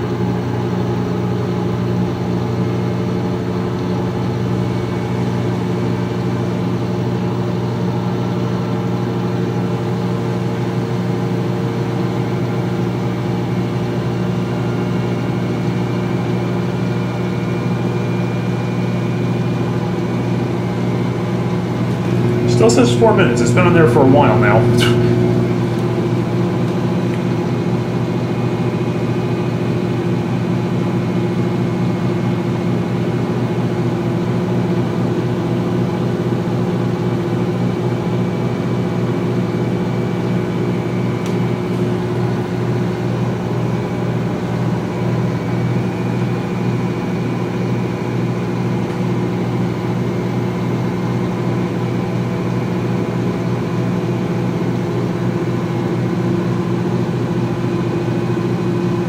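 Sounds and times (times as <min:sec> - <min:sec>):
washing machine drum spinning: 0:01.8 - 0:08.9, 0:11.0 - 0:48.4.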